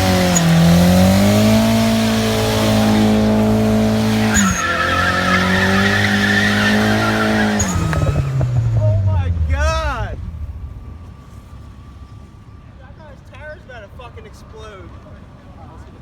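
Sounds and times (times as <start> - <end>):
car engine at high revs: 0.0 - 12.4
tyres skidding and squealing: 0.0 - 16.0.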